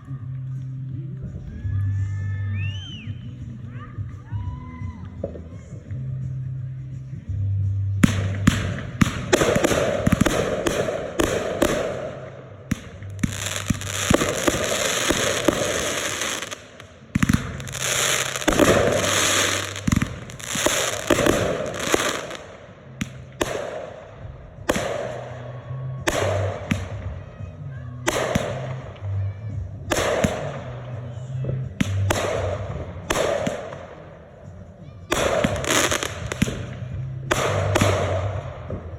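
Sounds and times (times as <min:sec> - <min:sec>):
music with low bass line: 0:00.0 - 0:38.9
fireworks bangs and crackling: 0:08.0 - 0:27.4, 0:28.0 - 0:38.9.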